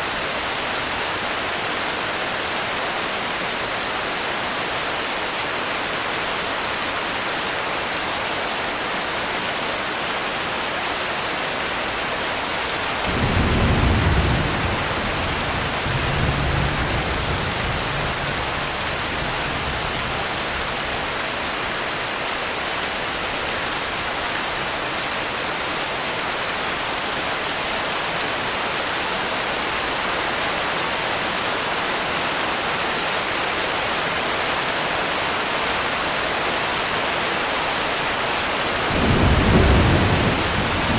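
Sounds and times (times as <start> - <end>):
steady rain hissing: 0.0 - 40.9
thunder rumbling: 13.0 - 21.2, 38.9 - 40.9.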